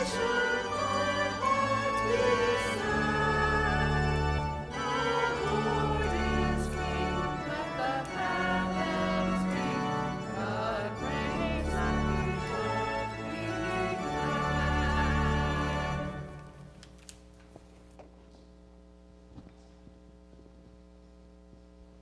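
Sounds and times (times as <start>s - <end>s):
voices singing a hymn: 0.0s - 16.6s
organ accompaniment: 0.0s - 16.8s.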